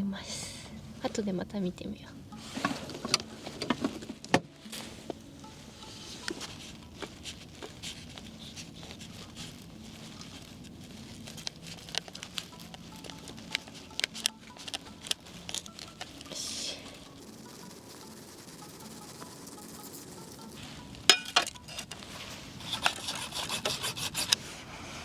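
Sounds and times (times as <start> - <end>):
soft background music: 0.0 - 25.0
utensils clicking and tapping: 10.6 - 22.0, 22.6 - 24.4.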